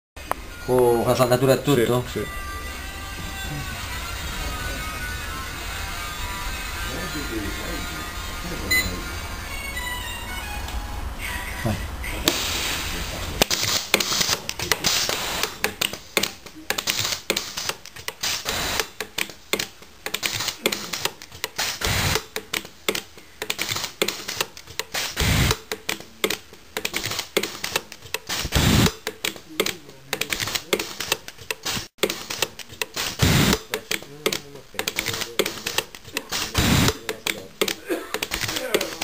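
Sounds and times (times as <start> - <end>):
steady hiss: 12.2 - 16.2, 16.8 - 19.1, 32.9 - 37.6
welder snapping clicks: 13.4 - 39.0.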